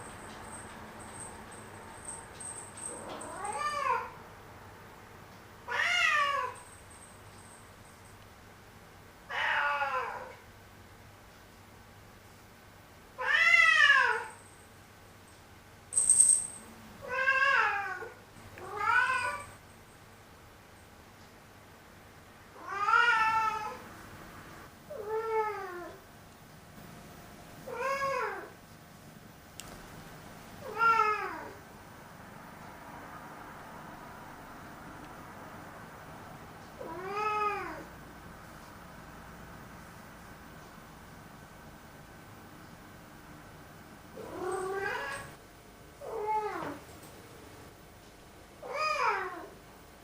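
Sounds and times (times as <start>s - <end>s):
cat meowing: 17.0s - 19.5s.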